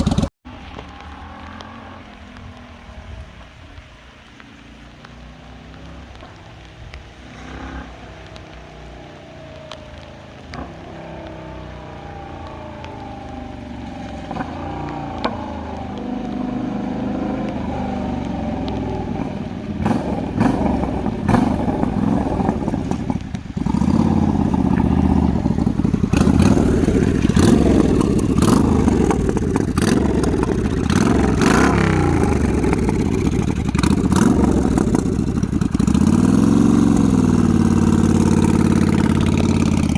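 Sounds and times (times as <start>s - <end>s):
motorcycle engine running: 0.0s - 3.8s, 7.2s - 39.9s.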